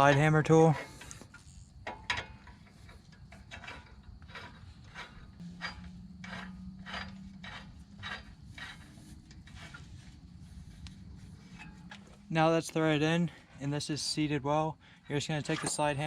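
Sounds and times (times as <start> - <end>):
metallic clicking and scraping: 0.0 - 13.4, 15.4 - 16.0
faint steady hum: 0.2 - 16.0.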